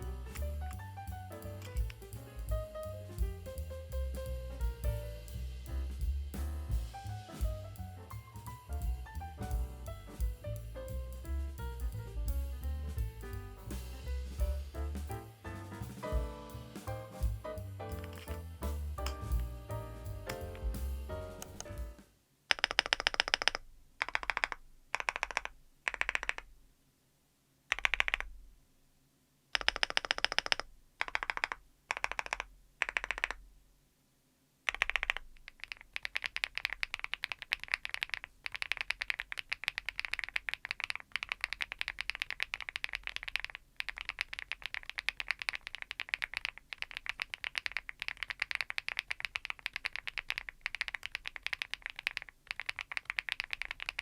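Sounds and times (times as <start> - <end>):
keyboard keys pressed rapidly: 0.0 - 5.0, 14.7 - 26.5, 27.7 - 28.3, 29.5 - 33.4, 34.7 - 54.0
fast keyboard typing: 22.5 - 26.5, 27.7 - 28.3, 29.5 - 33.4, 34.7 - 54.0.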